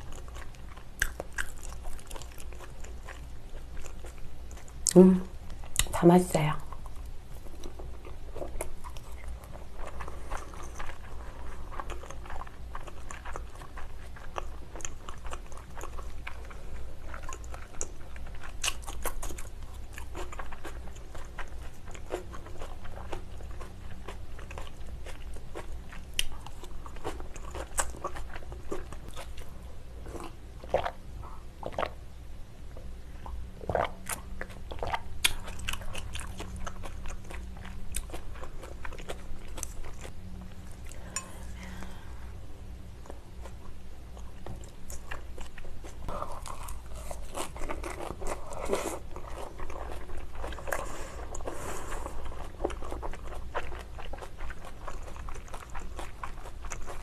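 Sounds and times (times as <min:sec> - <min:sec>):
chewing and wet mouth sounds: 0:00.0 - 0:32.0, 0:32.7 - 0:42.4, 0:43.0 - 0:57.0
crunching of salad vegetables: 0:33.6 - 0:42.0, 0:43.0 - 0:57.0.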